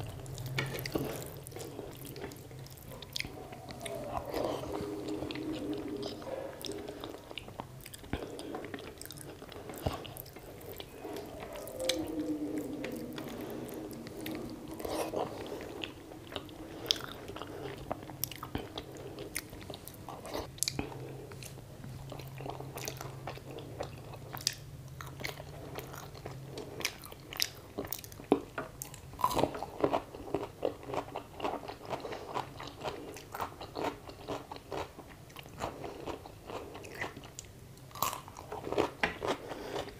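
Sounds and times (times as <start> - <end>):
wet chewing: 0.2 - 39.9.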